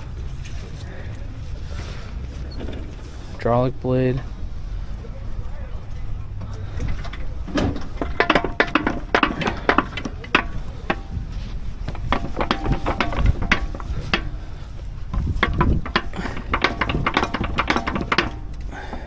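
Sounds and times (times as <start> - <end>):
sharp clicks and clatter: 6.4 - 19.0.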